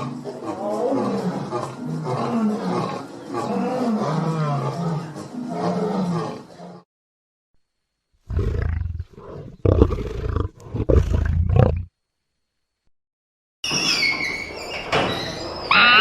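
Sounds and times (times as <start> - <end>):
big cat roaring: 0.0 - 6.8, 8.3 - 11.9.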